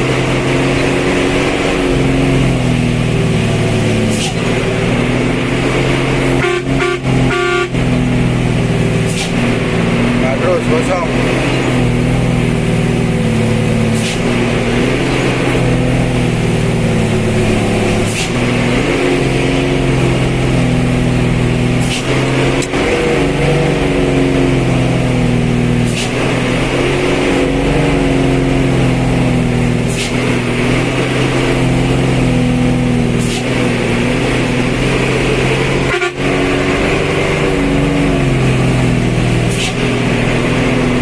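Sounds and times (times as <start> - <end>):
vehicle engine running loud: 0.0 - 41.0.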